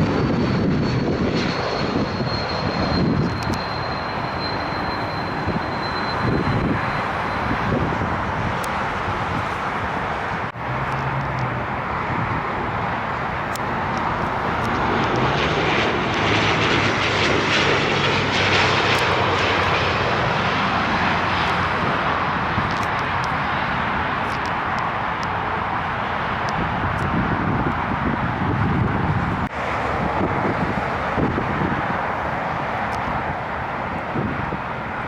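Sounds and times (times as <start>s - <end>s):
jet airliner engine: 0.0s - 35.0s
wind noise: 0.0s - 35.0s.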